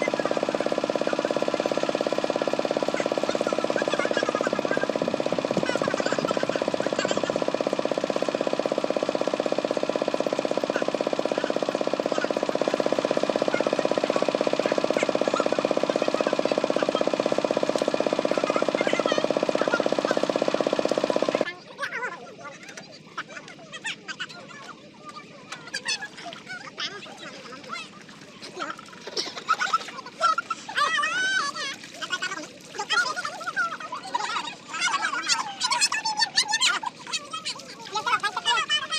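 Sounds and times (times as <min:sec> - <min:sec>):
tractor diesel engine knocking: 0:00.0 - 0:21.4.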